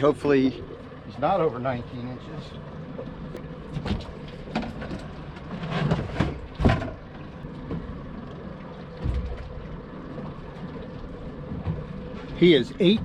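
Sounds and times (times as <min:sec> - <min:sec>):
knocks and thumps on a small boat: 0:03.0 - 0:08.1, 0:08.8 - 0:10.7, 0:11.4 - 0:13.0.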